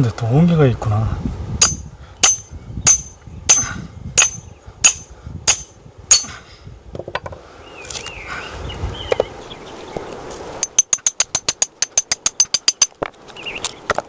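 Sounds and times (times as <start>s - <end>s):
metal striking metal with ring: 1.6s - 6.4s, 10.6s - 13.0s.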